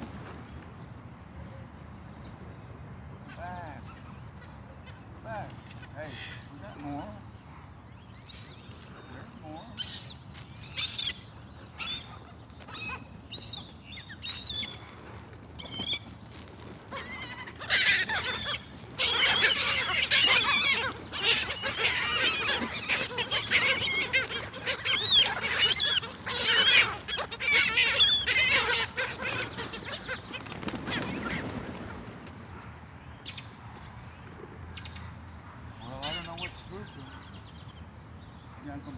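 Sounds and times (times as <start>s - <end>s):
seagulls calling: 8.3s - 33.5s, 34.8s - 37.7s.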